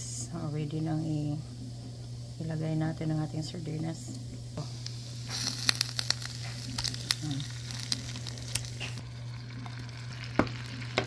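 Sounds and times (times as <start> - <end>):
steady low hum: 0.0 - 11.0
food sizzling in hot oil: 4.6 - 11.0.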